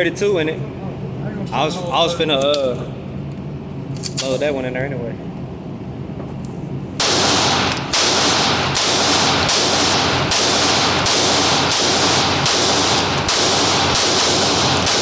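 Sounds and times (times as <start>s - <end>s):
rapid gunshots: 7.0s - 15.0s.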